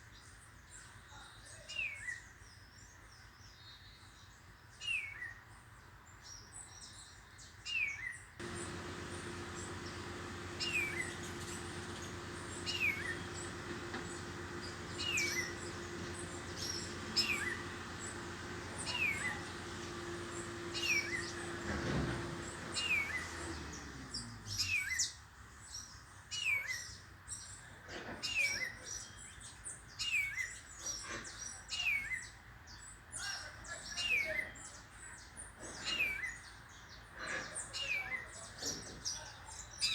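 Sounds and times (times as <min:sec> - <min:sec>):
low hum: 0:08.4 - 0:24.2
bird chirping: 0:08.4 - 0:24.6.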